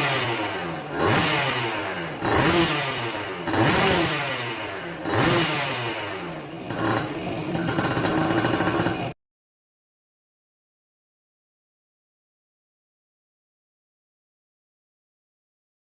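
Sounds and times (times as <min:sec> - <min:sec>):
two-stroke engine revving: 0:00.0 - 0:09.2.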